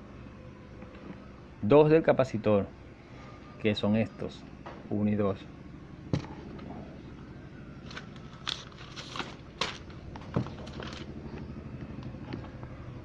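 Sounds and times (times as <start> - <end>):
low background hum: 0.0 - 13.0
handling clicks and rustles: 7.8 - 12.7.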